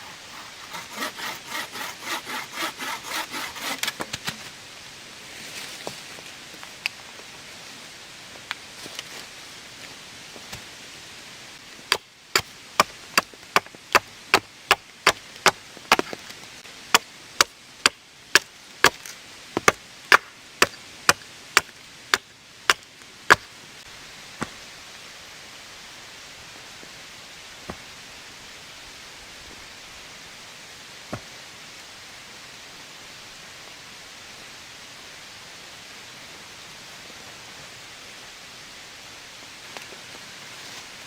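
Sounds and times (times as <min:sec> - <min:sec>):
hand tool chopping wood: 0:00.0 - 0:04.2
rain hiss: 0:23.5 - 0:41.0.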